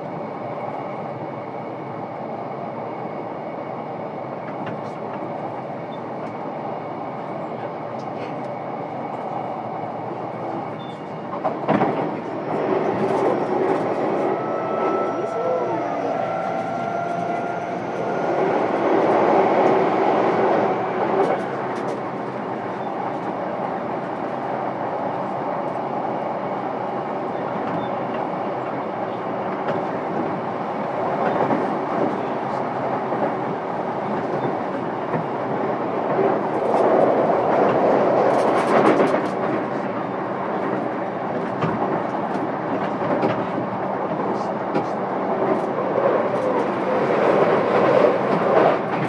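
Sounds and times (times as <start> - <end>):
train wheels rumbling on rail: 0.0 - 49.0
rail-joint clicks: 16.1 - 23.4.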